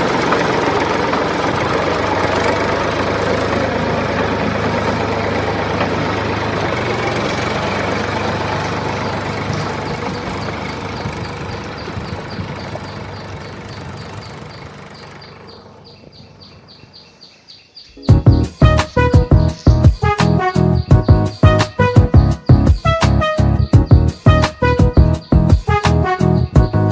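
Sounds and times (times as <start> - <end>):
faint ticking: 0.0 - 16.8
vehicle engine idling: 0.0 - 26.9.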